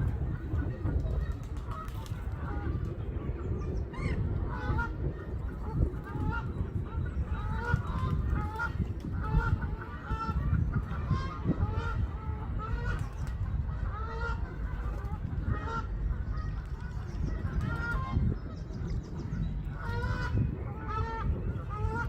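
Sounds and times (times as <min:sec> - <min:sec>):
flock of birds calling: 0:00.0 - 0:22.0.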